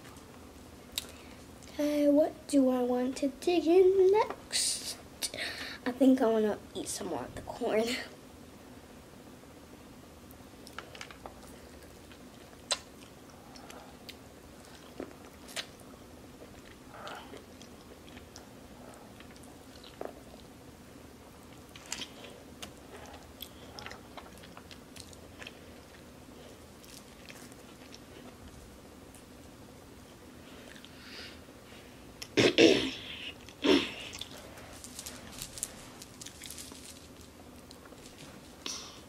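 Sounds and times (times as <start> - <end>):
child chewing corn on the cob: 10.6 - 20.6, 21.4 - 29.3, 33.1 - 38.8.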